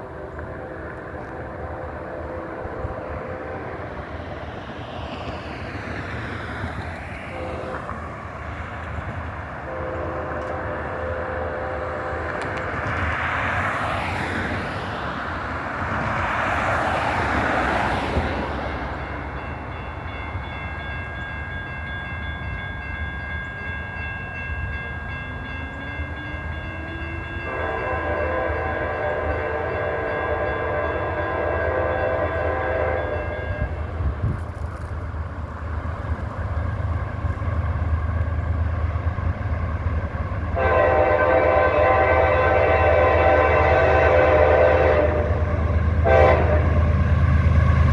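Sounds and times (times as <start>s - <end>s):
locomotive horn blast: 0.0s - 4.0s, 7.2s - 8.1s, 9.6s - 12.9s, 25.7s - 34.0s, 40.5s - 47.9s
low rumble of approaching train: 0.0s - 47.9s
crossing bell ringing: 18.6s - 34.1s, 39.2s - 47.9s.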